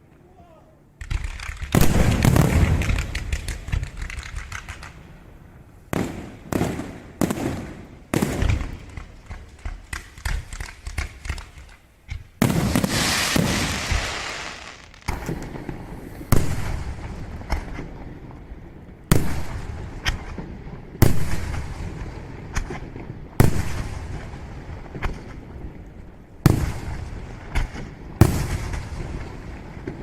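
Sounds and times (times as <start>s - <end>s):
fireworks crackling: 1.0s - 18.2s
fireworks bangs: 1.0s - 18.3s, 26.4s - 30.0s.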